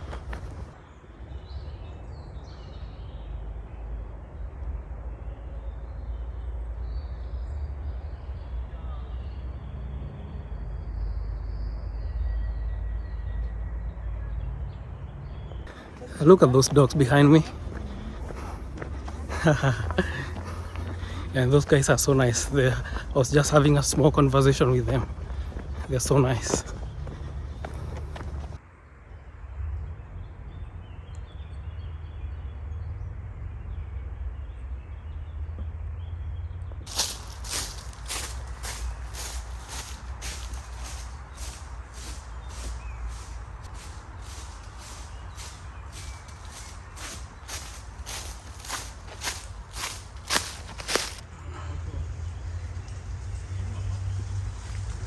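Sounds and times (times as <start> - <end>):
wind rumble: 0.0 - 0.8, 15.7 - 28.6, 36.9 - 51.3.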